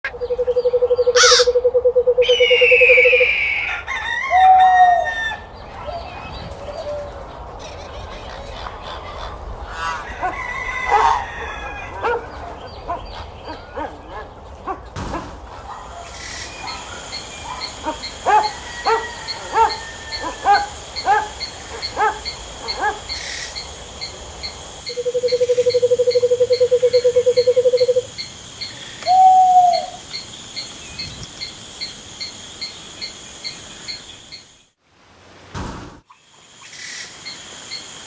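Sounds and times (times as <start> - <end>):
short pitched animal calls: 1.1 - 3.3
high insect chirring: 17.1 - 34.6.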